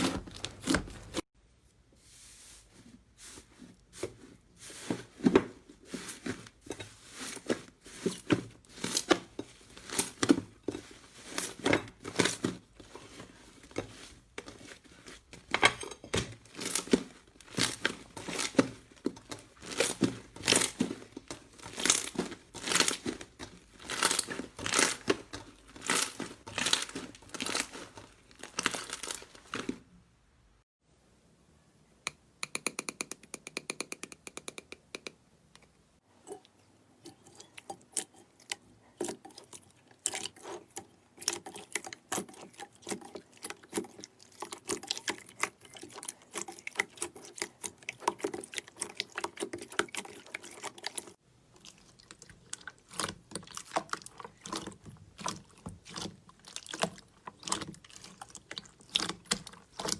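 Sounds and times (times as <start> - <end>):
slime squished by hand: 51.6 - 59.9.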